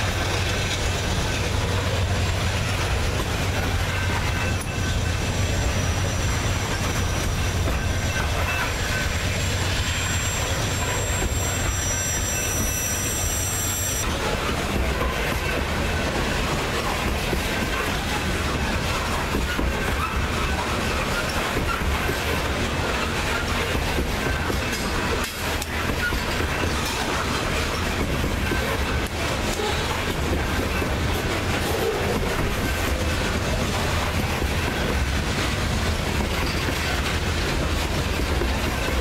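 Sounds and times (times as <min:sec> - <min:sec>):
wheel flanges squealing: 0:00.0 - 0:15.6, 0:16.8 - 0:39.0
train cars rolling on rails: 0:00.0 - 0:39.0.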